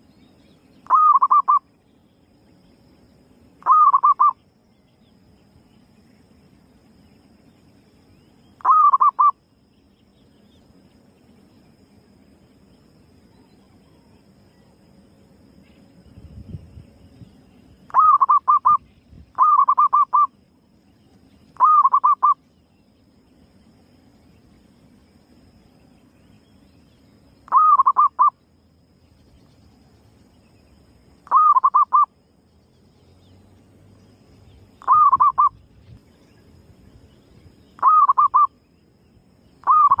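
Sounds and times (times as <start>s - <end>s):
dove cooing: 0.9s - 1.6s, 3.6s - 4.4s, 8.6s - 9.3s, 17.9s - 18.8s, 19.4s - 20.3s, 21.6s - 22.4s, 27.5s - 28.3s, 31.2s - 32.1s, 34.8s - 35.6s, 37.8s - 38.5s, 39.6s - 40.0s.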